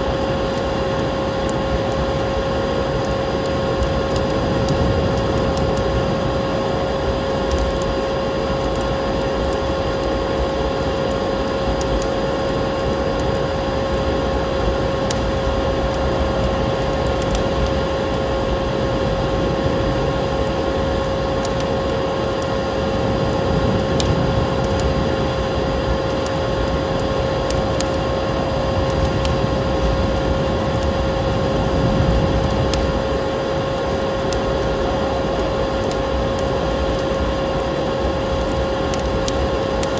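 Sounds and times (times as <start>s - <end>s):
constant hum: 0.0s - 39.9s
steady rushing noise: 0.0s - 39.9s
wood fire crackling and popping: 0.0s - 39.9s.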